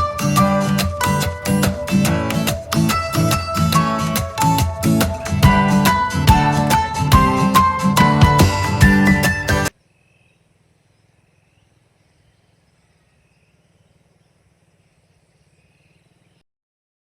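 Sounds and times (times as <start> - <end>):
acoustic guitar music: 0.0 - 9.7
faint chirps: 9.7 - 16.4.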